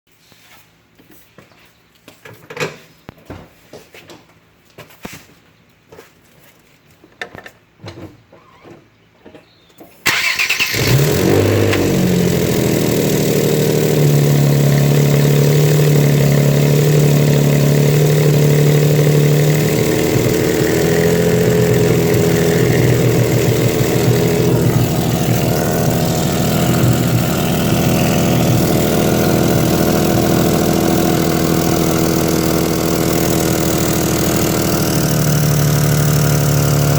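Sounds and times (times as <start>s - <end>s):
vehicle engine cranking and idling: 10.0s - 36.9s.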